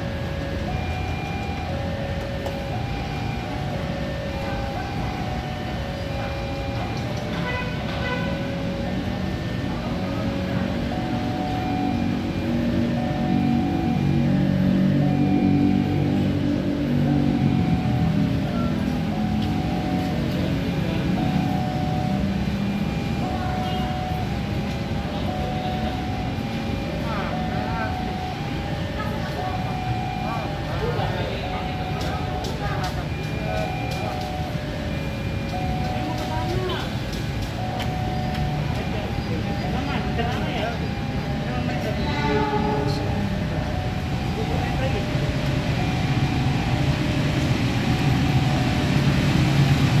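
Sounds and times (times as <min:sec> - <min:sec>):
rumble and hum from trains: 0:00.0 - 0:50.0
short higher tone: 0:41.6 - 0:43.9.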